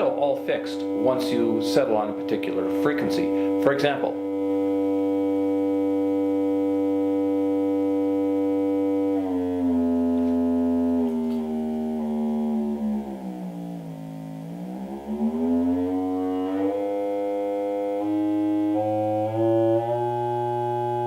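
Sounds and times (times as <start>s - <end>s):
electronic test tone: 0.0s - 15.6s.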